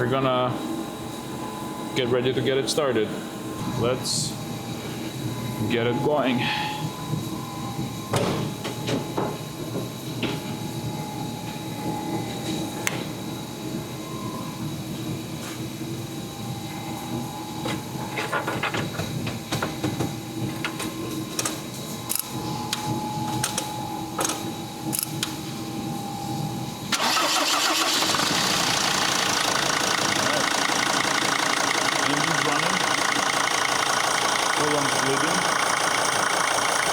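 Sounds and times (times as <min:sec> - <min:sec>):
diesel engine starting and running: 0:26.9 - 0:36.9.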